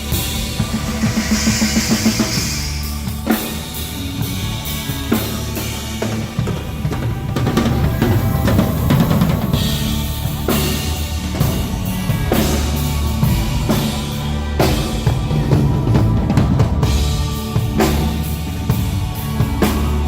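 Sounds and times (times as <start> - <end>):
cymbal crashes: 0.0 - 4.6
bass drum and snare: 0.0 - 20.0
rock band playing: 0.0 - 20.0.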